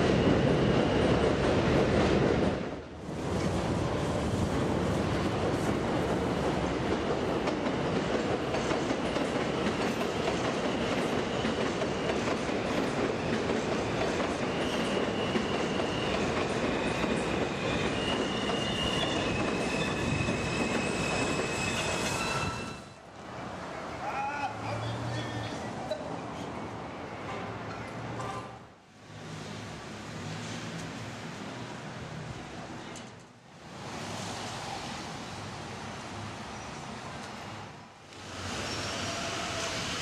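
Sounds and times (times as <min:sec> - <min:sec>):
train rumbling on rails: 0:00.0 - 0:40.0
train wheels squealing: 0:00.2 - 0:01.2, 0:10.1 - 0:23.0, 0:38.4 - 0:40.0.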